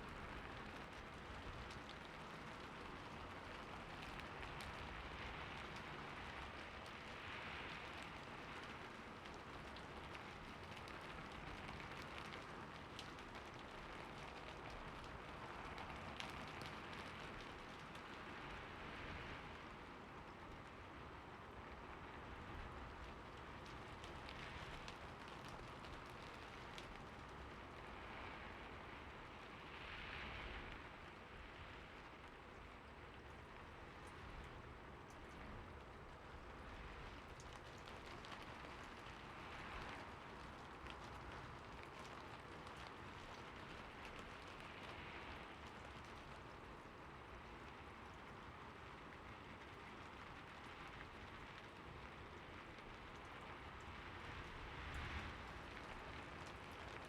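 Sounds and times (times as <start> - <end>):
light rain falling: 0.0 - 57.0.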